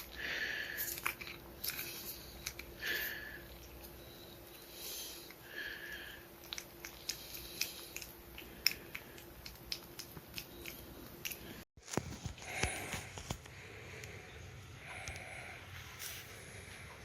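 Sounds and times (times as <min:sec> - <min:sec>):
pet chewing crunchy clicks: 0:00.8 - 0:02.8, 0:06.4 - 0:14.2.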